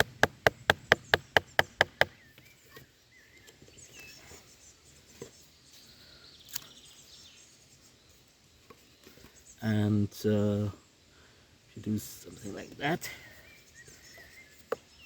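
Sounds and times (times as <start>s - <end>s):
knife chopping into wood: 0.0s - 2.1s
faint bird chirps: 1.0s - 15.0s.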